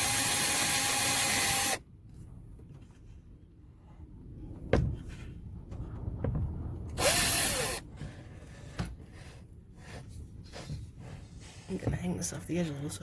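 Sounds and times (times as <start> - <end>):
power drill spinning: 0.0 - 1.8, 7.0 - 7.8.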